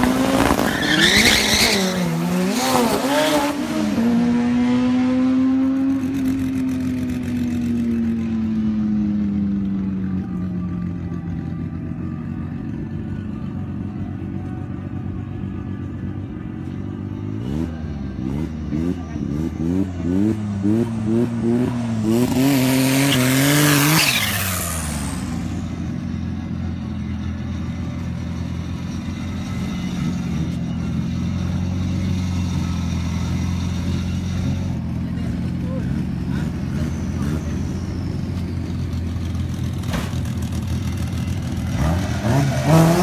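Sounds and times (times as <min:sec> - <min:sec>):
drag car engine revving: 0:27.6 - 0:43.0.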